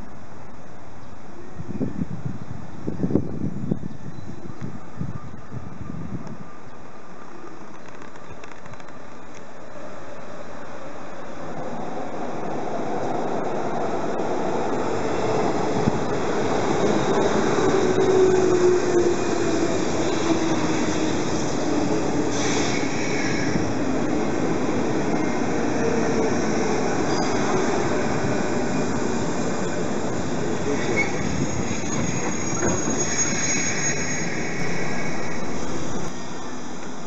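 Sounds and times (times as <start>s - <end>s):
high squeal: 16.5s - 23.8s, 25.1s - 37.0s.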